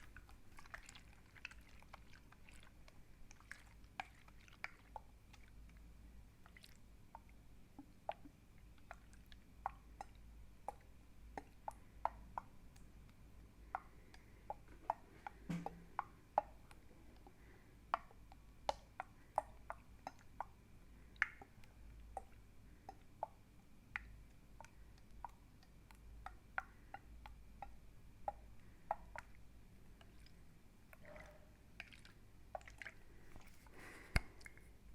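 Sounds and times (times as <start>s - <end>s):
wet liquid clicking: 0.0s - 34.7s
faint steady hum: 0.0s - 34.9s.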